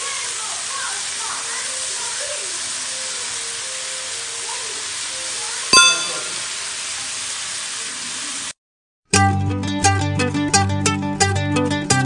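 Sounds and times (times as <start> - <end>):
vegetables sizzling in hot oil: 0.0 - 8.6
bell-like ding: 5.8 - 6.5.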